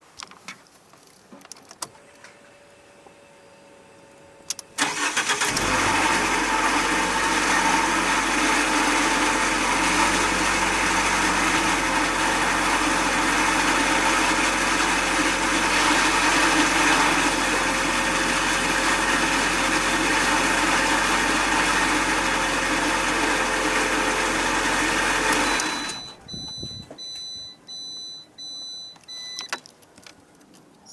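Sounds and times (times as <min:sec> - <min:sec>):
car engine starting and running: 0:02.0 - 0:29.6
rattling grinding transmission whine: 0:02.1 - 0:27.0
short electronic beeps: 0:25.4 - 0:29.6.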